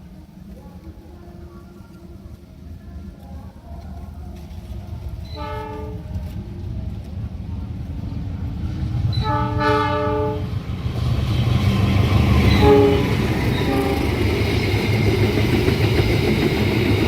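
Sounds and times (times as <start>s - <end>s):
train rumble and wheel clatter: 0.0s - 17.0s
train horn blasts: 5.3s - 6.2s, 9.1s - 10.6s, 12.4s - 14.4s.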